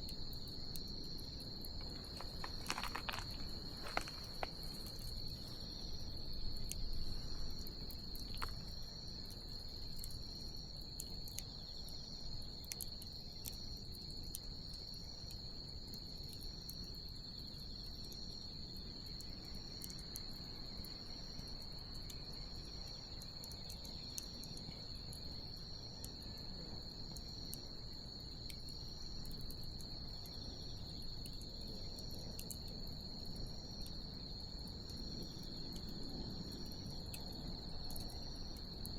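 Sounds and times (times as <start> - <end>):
crickets trilling: 0.0 - 38.9
insect chirping in pulses: 0.0 - 38.9
bonfire crackling and popping: 0.1 - 10.0.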